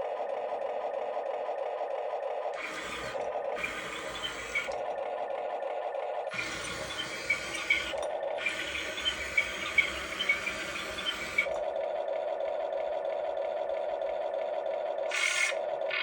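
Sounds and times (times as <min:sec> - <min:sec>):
electric motors whining: 0:00.0 - 0:16.0
machine scraping and clicking: 0:02.6 - 0:04.9, 0:06.3 - 0:11.6.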